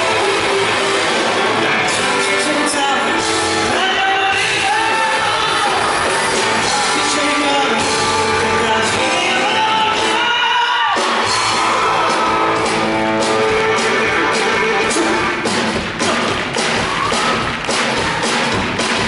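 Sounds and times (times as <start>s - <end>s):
rock band playing: 0.0s - 19.0s
person singing lead vocal: 1.7s - 11.4s, 13.4s - 16.4s.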